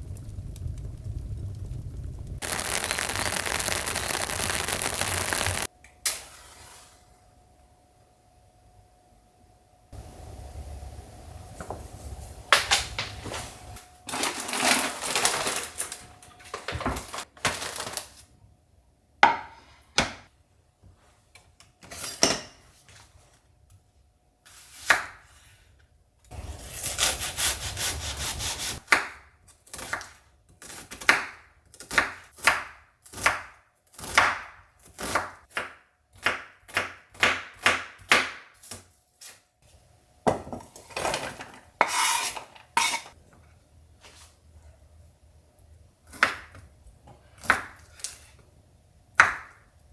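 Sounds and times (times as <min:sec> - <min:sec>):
hand saw cutting wood: 0:26.6 - 0:28.8.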